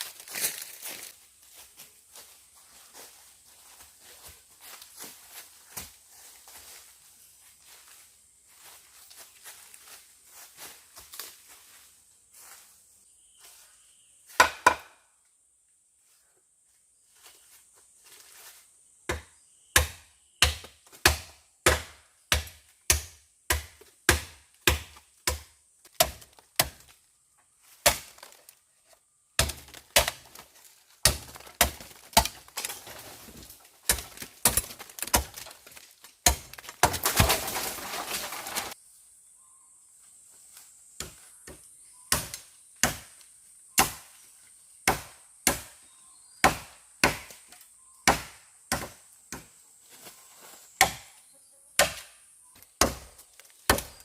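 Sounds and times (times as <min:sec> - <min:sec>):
blade chopping bamboo: 0:19.1 - 0:26.9, 0:27.8 - 0:28.4, 0:29.4 - 0:30.4, 0:31.0 - 0:38.8, 0:48.0 - 0:49.5, 0:50.8 - 0:51.1, 0:52.8 - 0:54.0.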